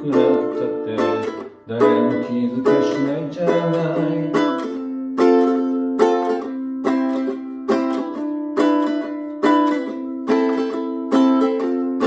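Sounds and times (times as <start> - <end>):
person singing: 0.0 - 8.2
strummed acoustic string instrument: 0.0 - 12.0.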